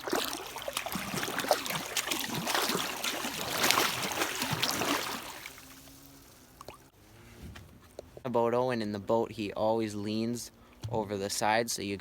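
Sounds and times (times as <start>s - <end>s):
water splashing against boat hull: 0.0s - 6.9s.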